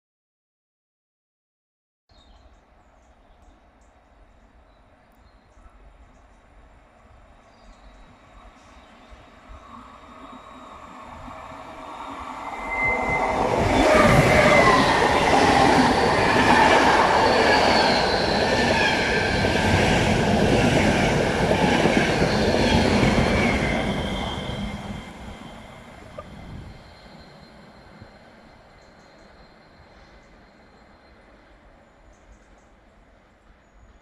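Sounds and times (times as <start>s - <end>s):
train wheels rumbling on rails: 9.6s - 34.0s
high whining tones: 10.0s - 20.1s.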